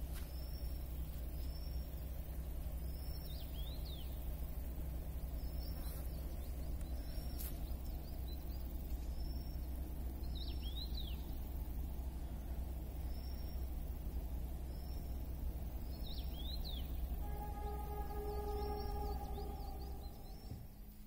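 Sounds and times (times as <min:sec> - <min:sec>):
steady low rumble: 0:00.0 - 0:21.0
bird swooping phrase: 0:17.2 - 0:20.5
small bird high note: 0:17.2 - 0:21.0.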